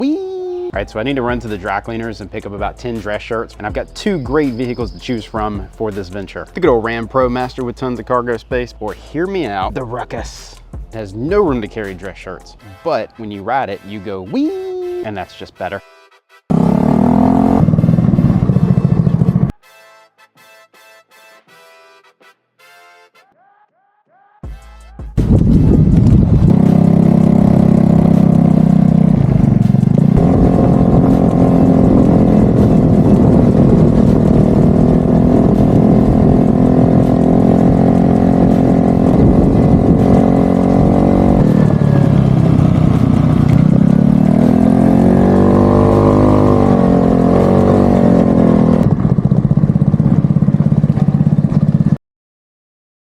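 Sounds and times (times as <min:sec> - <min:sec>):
scooter engine running: 0:16.5 - 0:19.6, 0:25.3 - 0:52.0.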